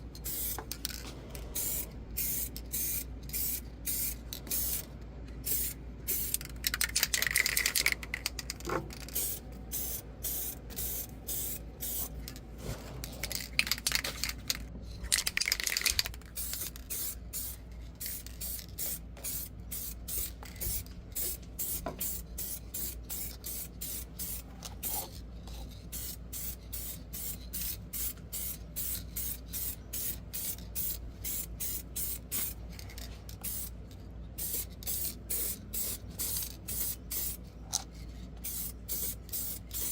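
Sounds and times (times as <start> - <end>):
steady low hum: 0.0 - 39.9
spray paint hissing bursts: 0.2 - 0.6, 1.6 - 4.8, 5.4 - 6.5, 9.0 - 12.1, 15.8 - 25.0, 25.8 - 32.6, 33.4 - 33.7, 34.4 - 37.4, 38.4 - 39.9.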